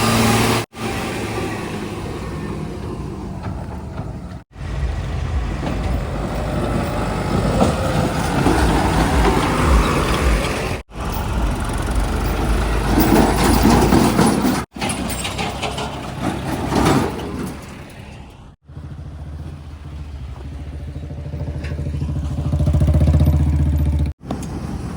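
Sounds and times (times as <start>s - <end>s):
heavy diesel engines running: 0.0s - 24.9s.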